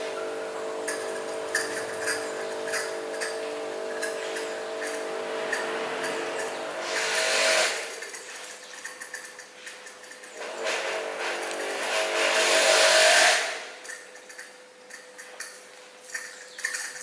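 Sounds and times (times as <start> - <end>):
motor humming: 0.0 - 8.2, 10.4 - 14.0.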